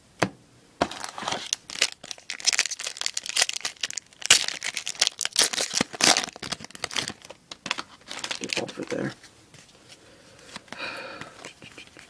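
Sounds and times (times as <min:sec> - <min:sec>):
foil wrapper tearing and crinkling: 0:00.8 - 0:09.2.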